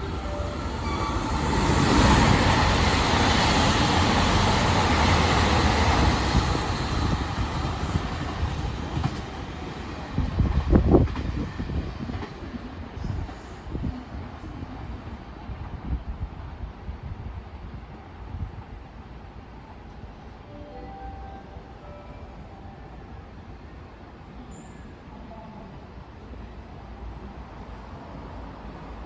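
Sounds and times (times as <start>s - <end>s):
diesel train passing at speed: 0.0s - 29.0s.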